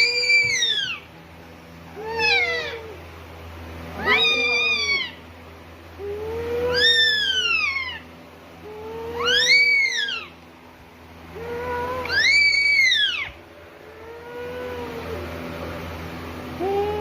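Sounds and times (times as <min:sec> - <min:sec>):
parrot meow-like calls: 0:00.0 - 0:01.1, 0:01.9 - 0:03.0, 0:04.0 - 0:05.2, 0:06.0 - 0:08.1, 0:08.7 - 0:10.4, 0:11.4 - 0:13.4.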